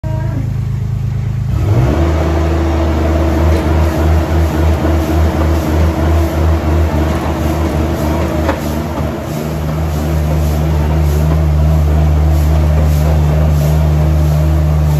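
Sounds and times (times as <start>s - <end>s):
tractor engine throbbing: 0.0s - 14.9s.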